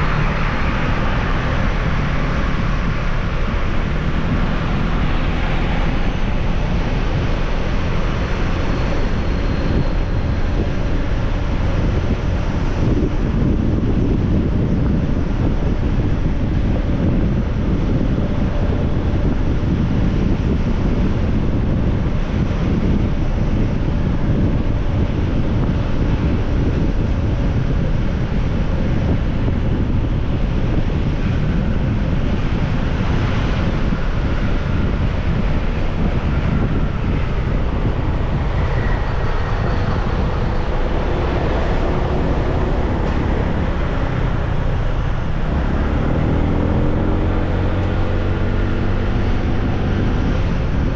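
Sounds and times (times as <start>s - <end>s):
road noise: 0.0s - 50.9s
wind buffeting microphone: 0.0s - 50.9s.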